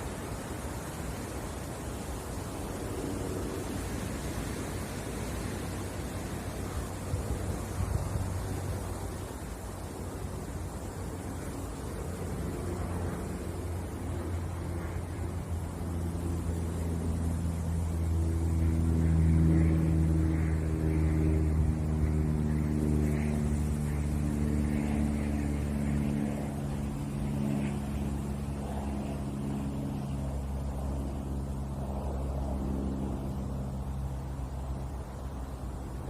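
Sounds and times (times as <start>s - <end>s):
passing motor engine drone: 0.0s - 36.0s.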